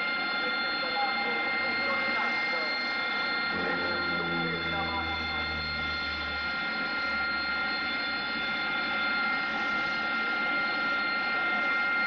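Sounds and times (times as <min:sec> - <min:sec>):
jet engine running: 0:02.4 - 0:10.6.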